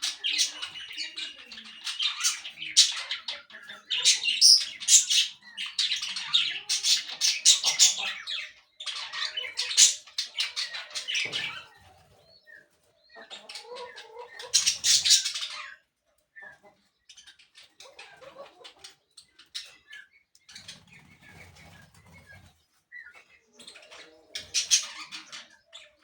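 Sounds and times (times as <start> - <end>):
parakeets chattering: 0.0 - 11.8, 12.4 - 15.8, 23.1 - 26.0.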